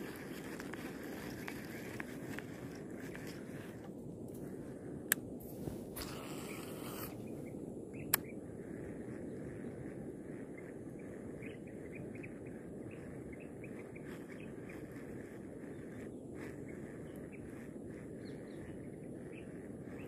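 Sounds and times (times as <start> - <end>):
small birds chirping: 0.0 - 4.9, 5.5 - 20.0
outdoor background hum: 0.0 - 20.0.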